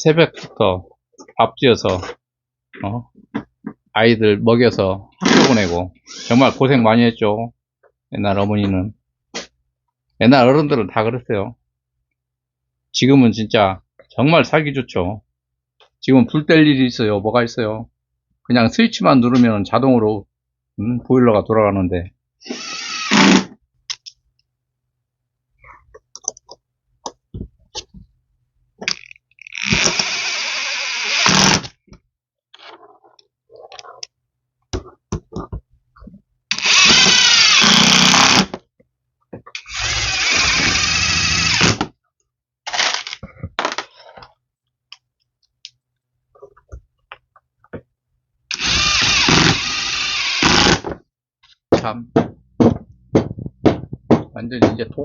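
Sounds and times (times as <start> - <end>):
handheld power tool motor: 22.5 - 23.5, 29.4 - 31.7, 36.5 - 38.5, 39.6 - 41.8, 48.5 - 50.9.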